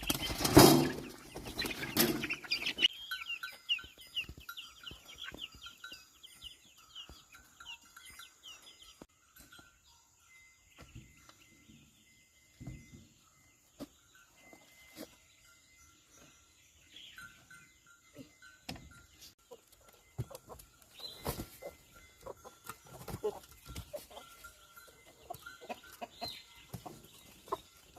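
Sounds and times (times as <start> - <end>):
chickens clucking: 0.0 - 8.7, 18.2 - 27.9
high chirping calls: 0.0 - 9.1.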